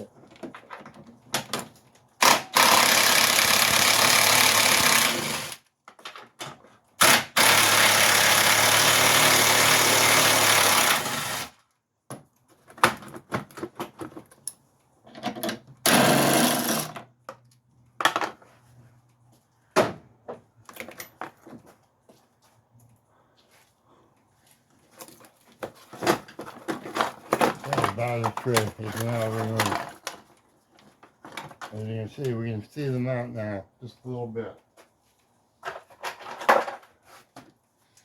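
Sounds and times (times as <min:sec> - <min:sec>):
power wrench running: 0:02.2 - 0:05.6, 0:07.0 - 0:11.5, 0:15.9 - 0:17.0.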